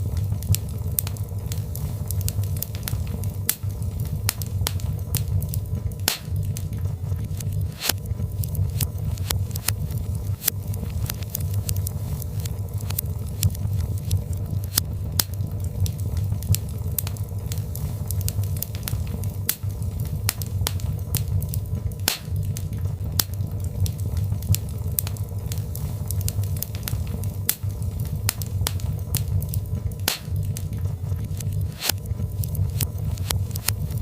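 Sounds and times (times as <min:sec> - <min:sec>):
fire rumbling: 0:00.0 - 0:34.0
logs crackling and popping: 0:00.0 - 0:34.0.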